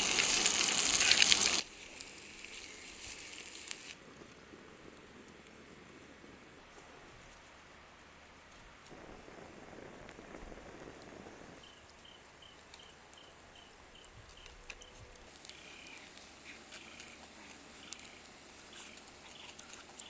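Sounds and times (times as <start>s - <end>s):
light clicks and crackles: 10.0s - 20.0s.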